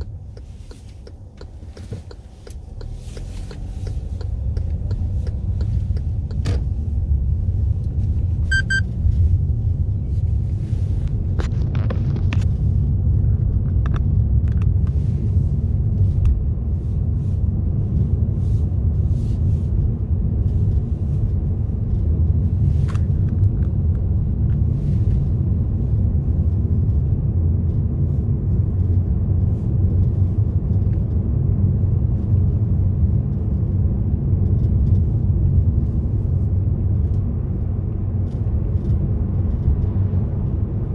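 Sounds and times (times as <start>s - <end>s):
car road and engine rumble: 0.0s - 40.9s
short electronic beep: 8.5s - 8.9s.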